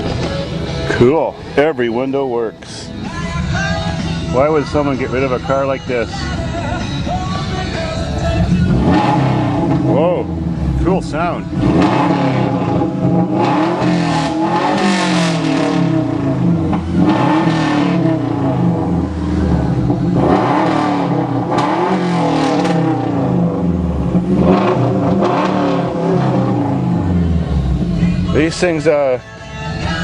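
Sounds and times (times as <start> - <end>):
car engine revving: 7.5 - 29.0.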